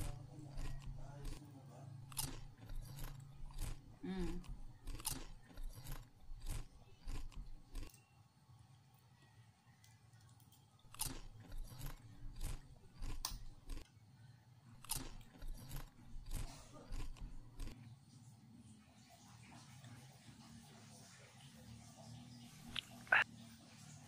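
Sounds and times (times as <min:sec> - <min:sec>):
person chewing with mouth clicks: 0:00.0 - 0:01.4, 0:02.0 - 0:07.9, 0:10.9 - 0:13.8, 0:14.8 - 0:17.8.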